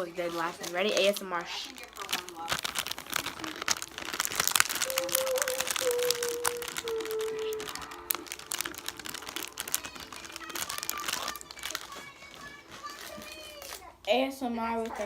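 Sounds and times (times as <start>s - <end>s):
crunching snack chips: 0.0s - 14.0s
snack bags crinkling: 0.0s - 15.0s.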